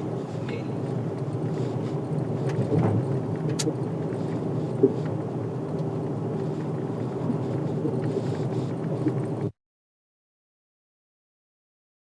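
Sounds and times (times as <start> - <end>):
car road and engine noise: 0.0 - 9.6.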